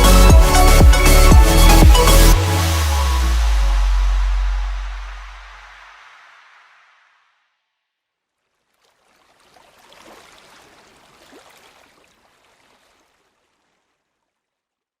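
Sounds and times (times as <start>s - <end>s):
water rushing and splashing: 0.0s - 6.8s, 8.7s - 13.7s.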